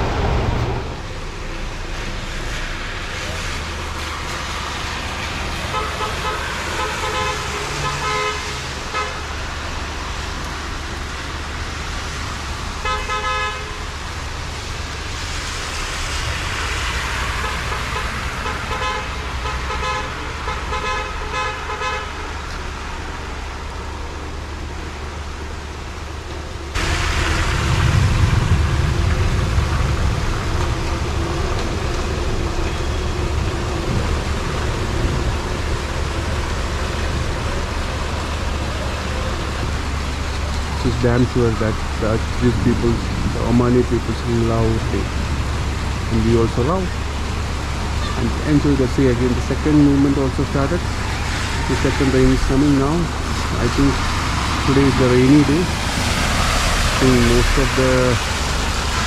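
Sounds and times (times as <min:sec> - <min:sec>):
heavy rain: 0:00.0 - 0:59.0
road traffic: 0:00.0 - 0:59.0
car horns tooting: 0:05.7 - 0:09.4, 0:12.8 - 0:13.9, 0:17.3 - 0:22.4
low rumble: 0:25.8 - 0:41.0.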